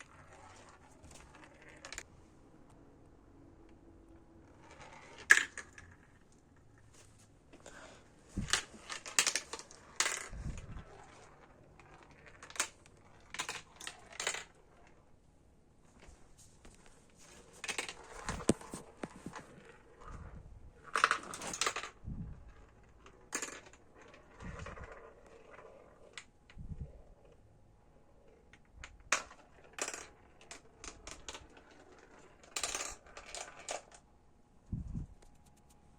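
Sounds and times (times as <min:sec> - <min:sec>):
marbles clattering through marble run: 0:04.6 - 0:06.2, 0:11.9 - 0:14.6, 0:22.7 - 0:26.1, 0:29.1 - 0:33.9.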